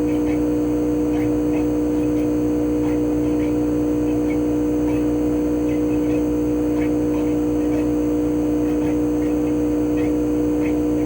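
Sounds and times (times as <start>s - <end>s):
compressor two-tone hum: 0.0s - 11.0s.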